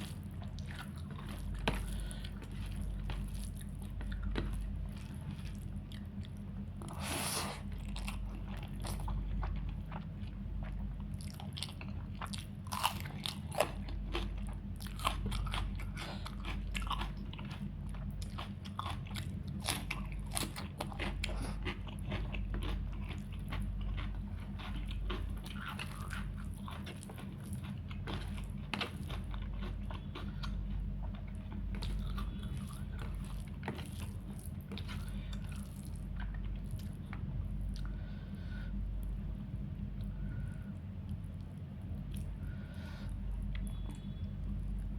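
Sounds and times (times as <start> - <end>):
steady low hum: 0.0 - 44.9
person biting and chewing: 11.1 - 37.1.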